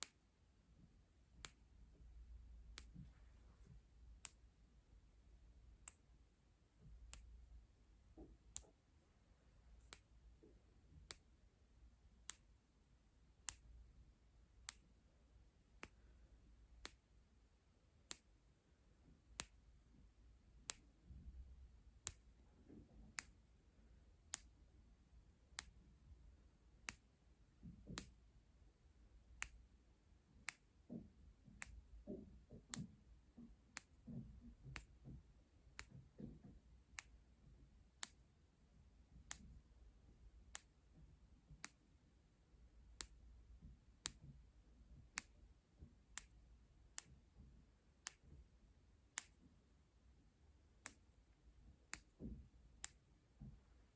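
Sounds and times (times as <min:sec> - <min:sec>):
faint soft taps and rustles: 0:08.1 - 0:08.8, 0:27.6 - 0:28.3, 0:30.5 - 0:37.6, 0:51.8 - 0:53.9.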